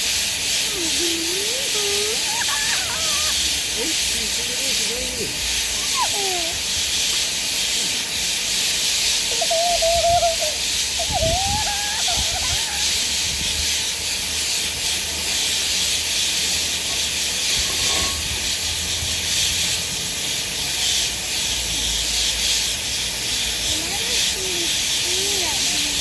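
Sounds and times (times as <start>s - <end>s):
steam locomotive hissing: 0.0s - 26.0s
wavering whistled tone: 9.3s - 12.9s.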